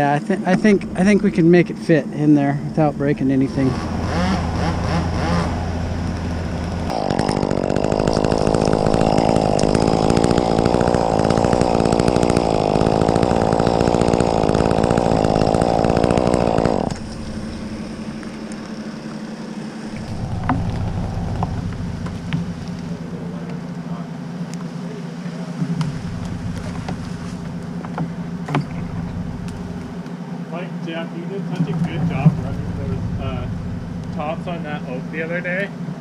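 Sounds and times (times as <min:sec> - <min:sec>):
low engine hum: 0:00.0 - 0:07.0, 0:07.9 - 0:36.0
chainsaw cutting treetop: 0:03.3 - 0:23.6, 0:25.8 - 0:30.1.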